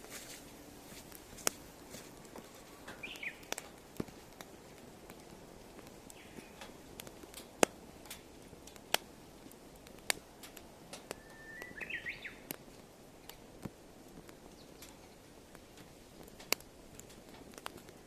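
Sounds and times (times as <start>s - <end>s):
wood fire crackling: 0.0s - 18.0s
bird chirping: 2.9s - 3.5s, 6.1s - 6.6s, 11.1s - 12.5s.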